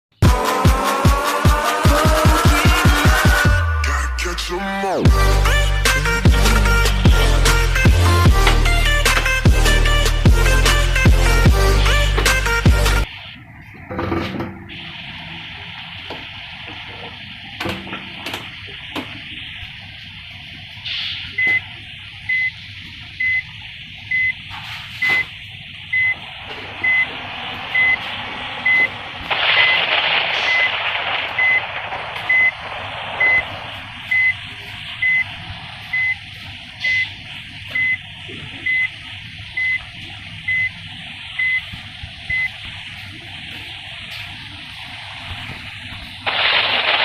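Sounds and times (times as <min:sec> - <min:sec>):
traffic noise: 0:13.0 - 0:47.0
reversing alarm beeping: 0:20.9 - 0:42.7
loud rush of noise: 0:25.8 - 0:37.7, 0:43.2 - 0:47.0.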